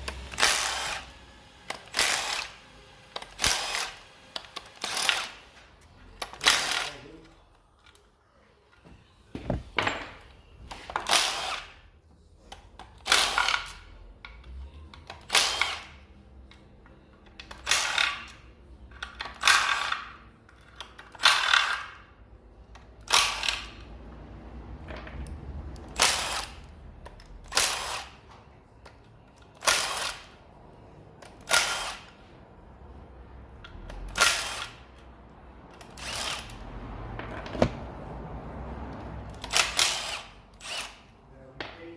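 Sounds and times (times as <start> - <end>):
power tool spinning out bolts: 0.0 - 5.6.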